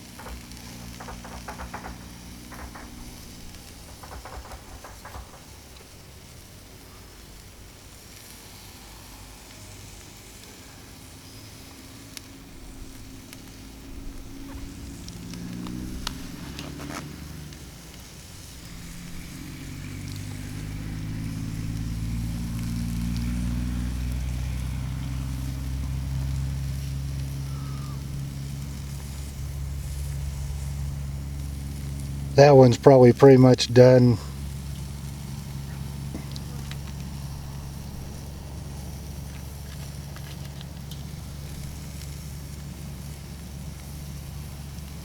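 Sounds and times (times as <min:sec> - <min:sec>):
low engine-like hum: 0:00.0 - 0:05.8, 0:08.6 - 0:45.0
sharp clicks: 0:00.0 - 0:05.8
chicken sizzling on grill: 0:08.0 - 0:45.0.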